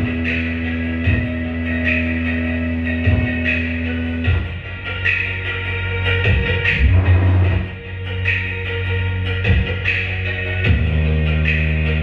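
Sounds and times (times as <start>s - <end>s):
electronic dance music: 6.2s - 7.9s
deep held bass notes: 6.2s - 8.2s.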